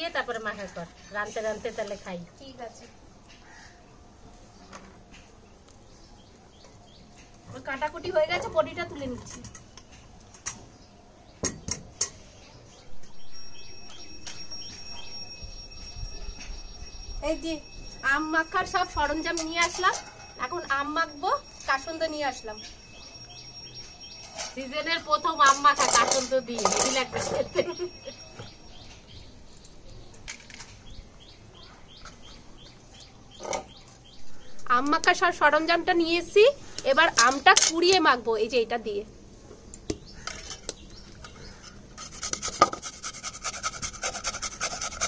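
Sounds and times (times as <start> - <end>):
birds chirping: 0.1 - 38.1, 39.0 - 42.3
thin steady high tone: 12.9 - 29.6
kitchen items knocking: 24.3 - 27.6.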